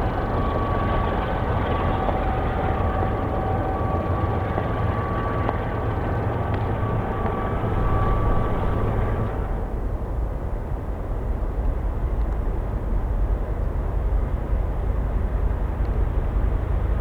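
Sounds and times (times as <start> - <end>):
faint thin whines: 0.0 - 9.7
freight train rumbling on rails: 0.0 - 17.0.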